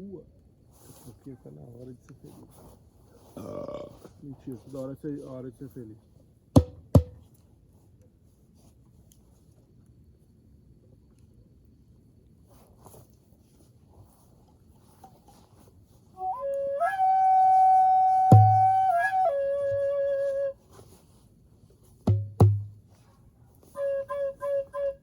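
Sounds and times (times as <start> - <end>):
djembe bass strikes: 6.6 - 7.2, 18.3 - 18.8, 22.1 - 22.8
flute playing long notes: 16.2 - 20.6, 23.6 - 25.0.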